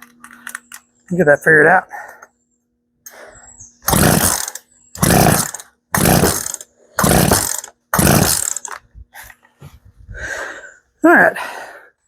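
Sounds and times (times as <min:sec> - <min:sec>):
chainsaw engine bursts: 0:03.8 - 0:08.8.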